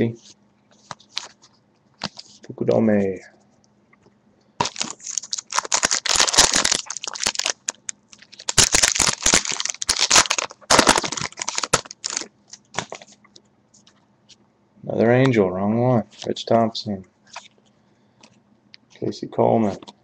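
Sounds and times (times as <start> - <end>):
wrappers and cards crinkling: 0.8 - 2.4, 4.6 - 13.2.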